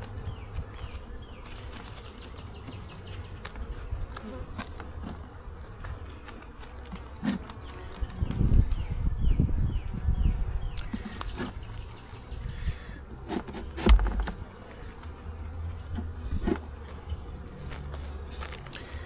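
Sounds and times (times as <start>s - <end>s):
honey bees buzzing: 0.0s - 19.0s
clicks and knocks from handling: 13.2s - 14.4s
loud thump: 13.8s - 14.4s.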